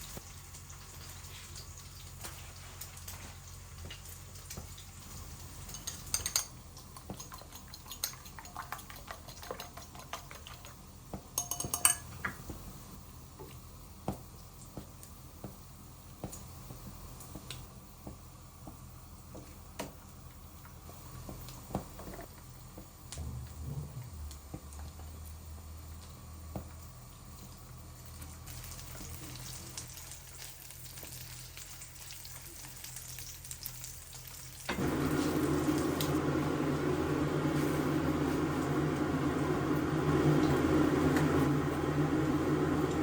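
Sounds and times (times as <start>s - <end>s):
crockery and cutlery clinking: 11.4s - 12.3s.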